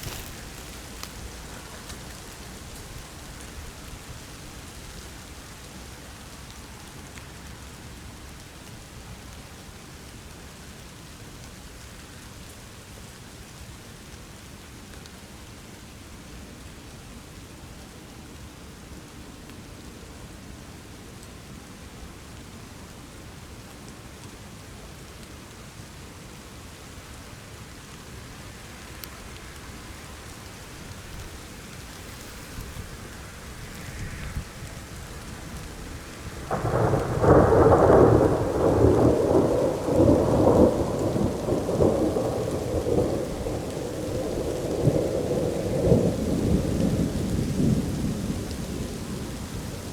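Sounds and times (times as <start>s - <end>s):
steady rain hiss: 0.0s - 49.9s
thunder rolling: 30.4s - 49.7s.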